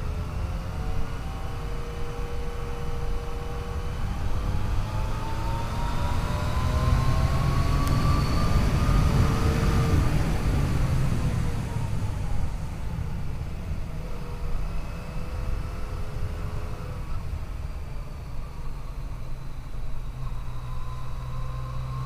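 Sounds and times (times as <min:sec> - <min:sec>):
motorcycle engine accelerating: 0:00.0 - 0:13.0
wind and road noise: 0:00.0 - 0:22.0.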